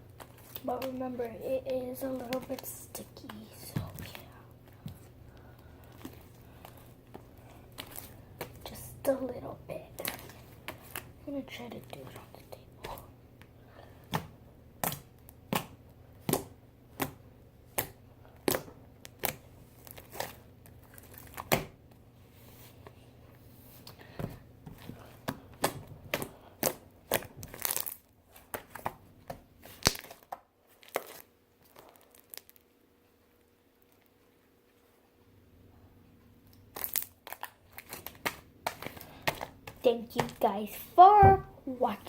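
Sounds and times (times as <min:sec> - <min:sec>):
slime popping and crackling: 0:25.6 - 0:28.9, 0:29.8 - 0:32.6, 0:36.6 - 0:40.4.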